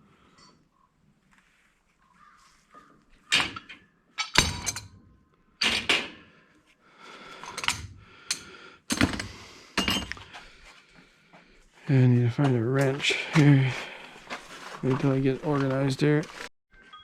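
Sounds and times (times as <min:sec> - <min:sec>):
metal tools knocking and clanking: 0:03.3 - 0:05.0, 0:05.6 - 0:06.2, 0:07.4 - 0:10.4.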